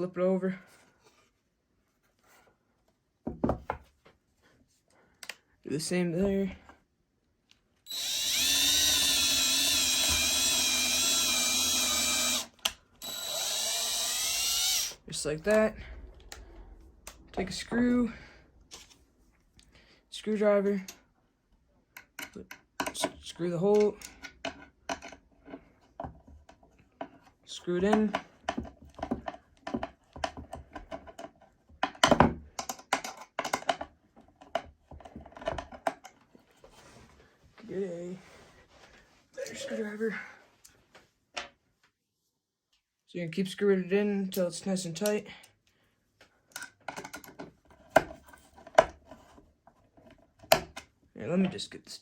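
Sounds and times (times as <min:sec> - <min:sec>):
screwdriver driving screw into wood: 0:07.9 - 0:15.0
power drill boring into wood: 0:07.9 - 0:15.7.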